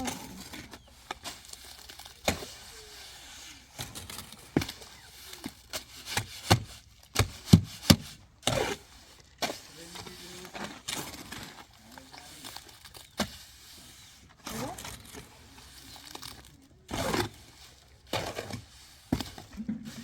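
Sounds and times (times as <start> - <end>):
rustling: 0.0 - 20.0
faint voices: 14.4 - 18.1.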